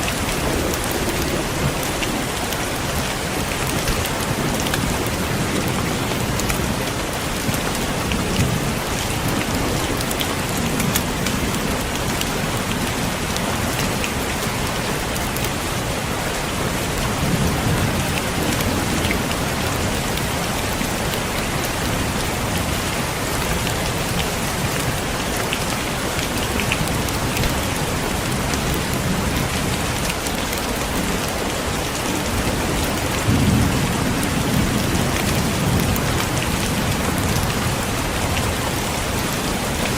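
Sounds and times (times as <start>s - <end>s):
heavy rain falling: 0.0s - 39.9s
low thunder rumbles: 31.8s - 39.9s.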